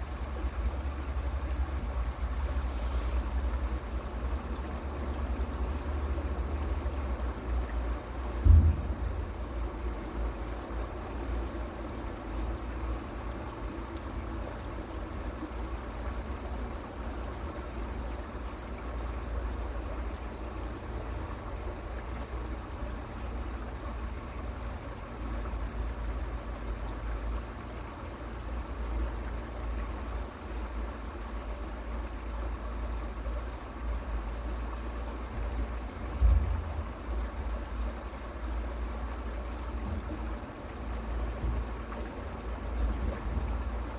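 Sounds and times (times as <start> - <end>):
creek water running: 0.0 - 43.9
low rumble: 8.2 - 11.4
knock: 8.4 - 9.7.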